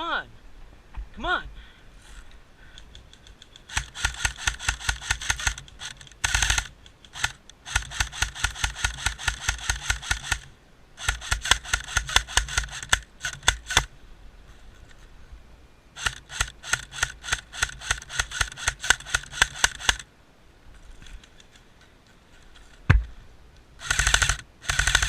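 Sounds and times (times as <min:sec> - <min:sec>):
airsoft gun firing: 0:03.7 - 0:13.9, 0:16.0 - 0:20.0, 0:23.8 - 0:25.0.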